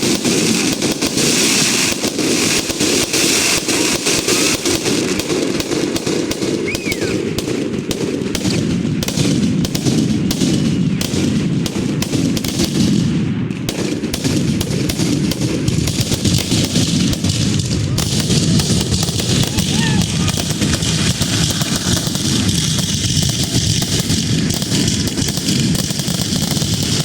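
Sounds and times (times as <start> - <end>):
fireworks cracks and bangs: 0.0 - 27.0
low rumble of booms: 15.2 - 26.6.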